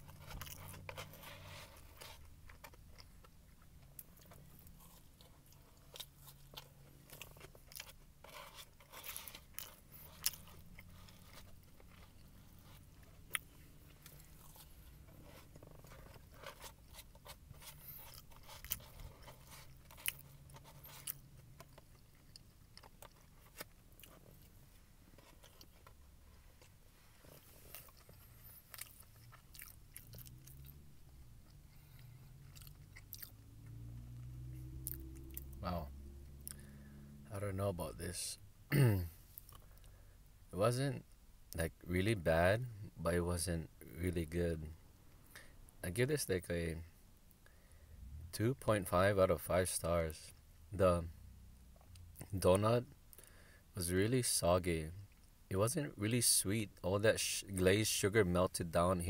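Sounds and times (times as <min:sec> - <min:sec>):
chewing with crisp crunches: 0:00.0 - 0:35.6, 0:36.2 - 0:36.9, 0:38.8 - 0:40.0
low steady hum: 0:00.0 - 0:59.0.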